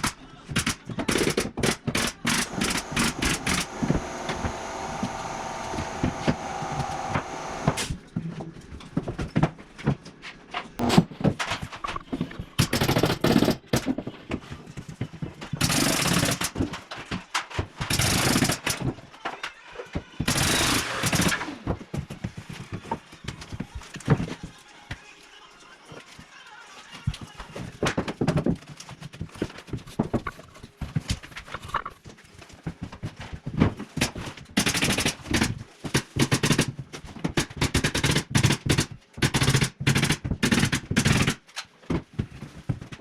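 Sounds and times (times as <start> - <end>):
pneumatic nail gun firing: 0.6 - 7.9, 15.6 - 16.6, 17.9 - 18.9, 20.3 - 21.7, 34.6 - 35.4, 37.7 - 41.4
steady tool sound: 2.2 - 7.9
noisy bursts: 2.3 - 7.9.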